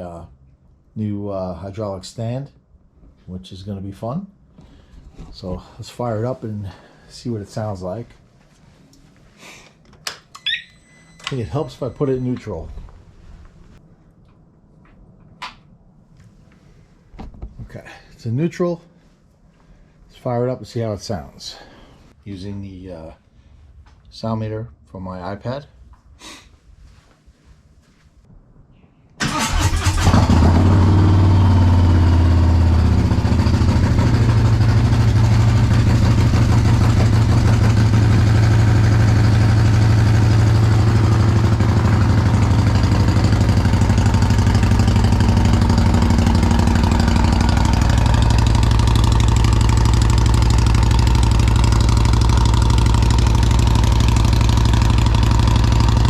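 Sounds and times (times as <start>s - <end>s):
motorcycle engine cranking and idling: 11.2s - 13.0s, 29.2s - 56.0s.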